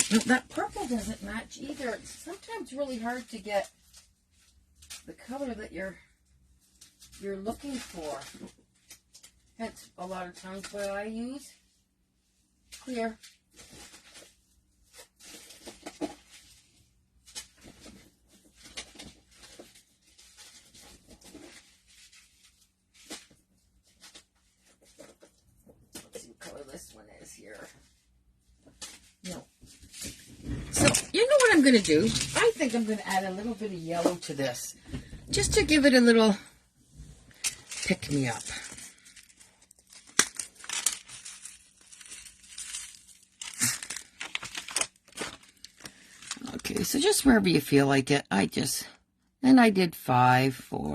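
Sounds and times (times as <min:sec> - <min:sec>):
crafting supplies crinkling: 0:00.0 - 0:05.5, 0:28.8 - 0:34.4, 0:37.2 - 0:47.1.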